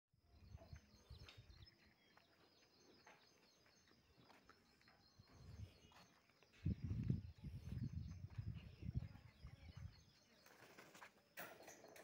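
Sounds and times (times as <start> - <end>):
distant bird chirps: 0.2 - 12.0
low rumbles on microphone: 6.6 - 10.7.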